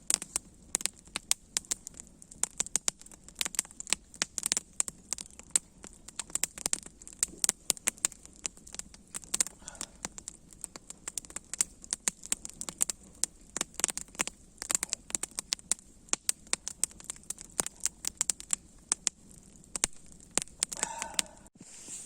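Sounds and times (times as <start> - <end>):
campfire crackling and popping: 0.0 - 22.0
faint hiss: 20.7 - 22.0.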